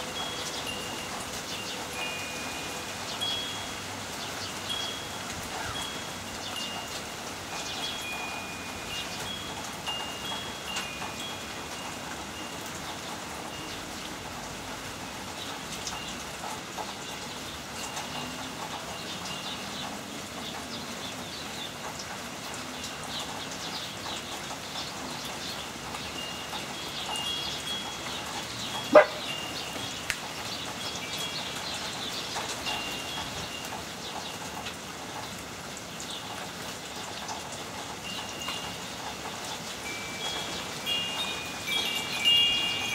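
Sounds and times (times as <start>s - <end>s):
heavy rain falling: 0.0s - 42.9s.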